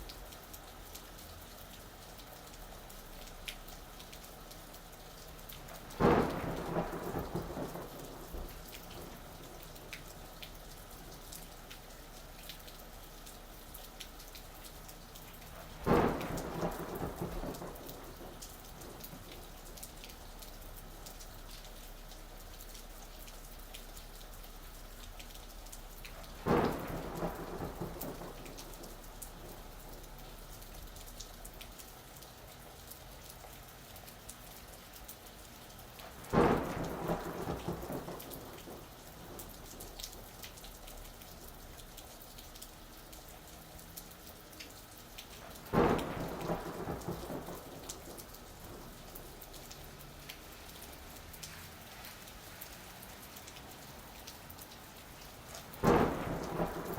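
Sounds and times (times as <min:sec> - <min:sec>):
steady rain falling: 0:00.0 - 0:56.9
thunderclaps rumbling: 0:05.6 - 0:09.9, 0:15.6 - 0:19.6, 0:26.3 - 0:30.6, 0:36.1 - 0:40.4, 0:45.4 - 0:51.0, 0:55.7 - 0:56.9.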